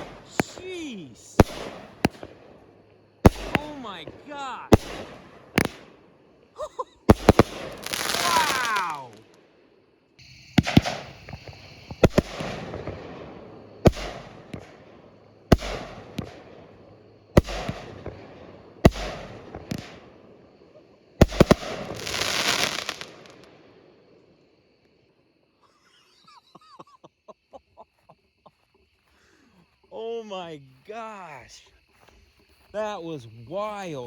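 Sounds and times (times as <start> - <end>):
firework crackling: 0.0 - 6.1, 7.0 - 9.4, 10.2 - 20.3, 21.2 - 23.6
firework bangs: 0.0 - 6.3, 7.0 - 9.4, 10.2 - 23.8.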